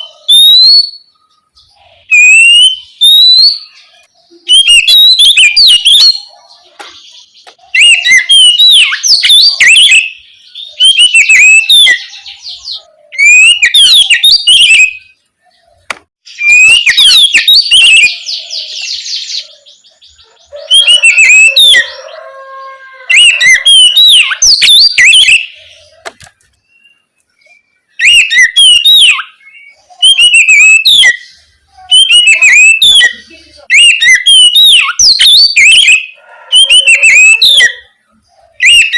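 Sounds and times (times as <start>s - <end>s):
bird singing whistled phrases: 0.0s - 6.4s, 7.7s - 15.2s, 16.3s - 26.0s, 26.7s - 37.9s, 38.6s - 38.9s.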